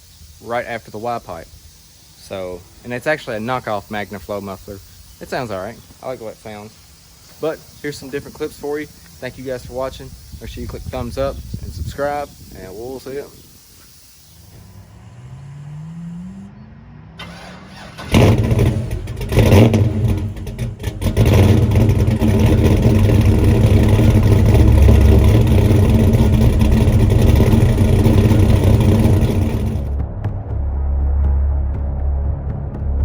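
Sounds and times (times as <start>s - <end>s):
faint rising whine: 14.3s - 20.9s, 22.1s - 30.0s
truck engine starting and running: 14.3s - 33.0s.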